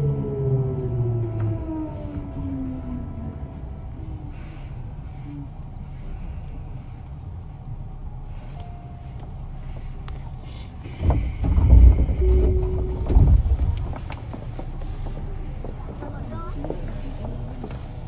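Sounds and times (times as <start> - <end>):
train car rumble: 0.0 - 18.0
low thuds and clatter: 10.8 - 18.0.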